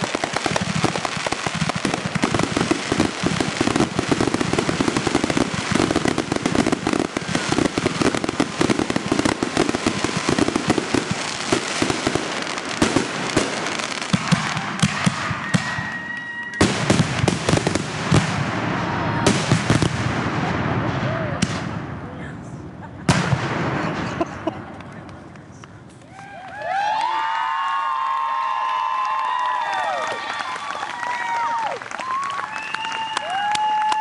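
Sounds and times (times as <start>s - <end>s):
fireworks crackling and popping: 0.0s - 34.0s
firework whistle: 14.2s - 16.9s, 32.0s - 34.0s.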